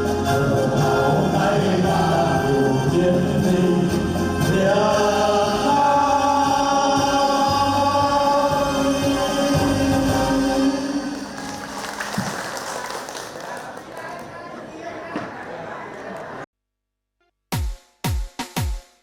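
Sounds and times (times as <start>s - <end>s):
people singing: 0.0s - 11.4s.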